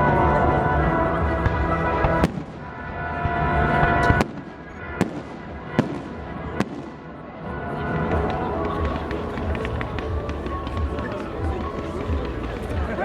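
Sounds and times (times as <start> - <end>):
continuous rumbling: 7.6 - 13.0.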